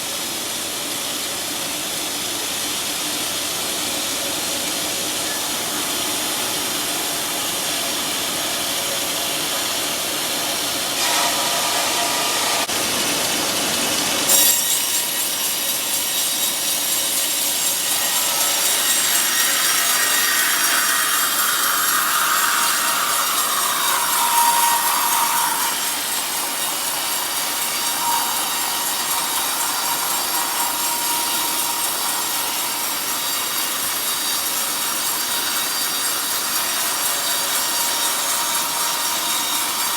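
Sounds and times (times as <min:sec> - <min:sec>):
saw blade cutting log: 0:10.8 - 0:13.0, 0:14.2 - 0:39.9.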